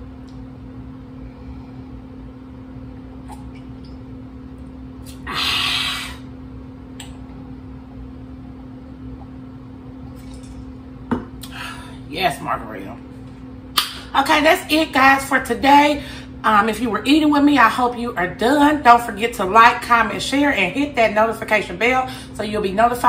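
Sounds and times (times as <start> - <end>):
low hum: 0.0 - 17.1.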